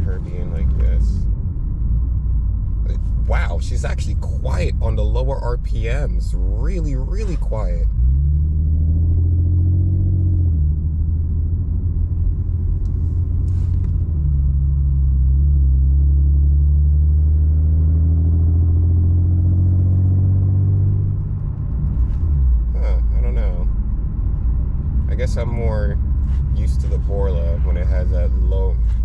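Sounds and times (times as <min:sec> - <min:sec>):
car exhaust drone from inside cabin: 0:00.0 - 0:29.0.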